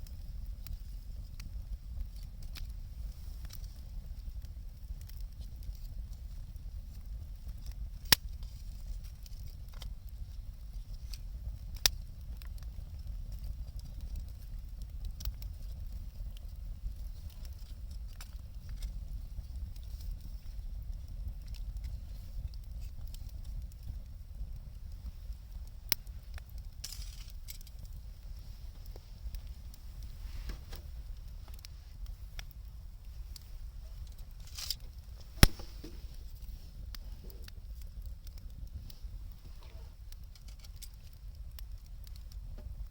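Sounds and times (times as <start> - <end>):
burning wood popping: 0.0 - 42.9
wood fire crackling: 0.0 - 42.9
sharp pops: 35.2 - 36.2.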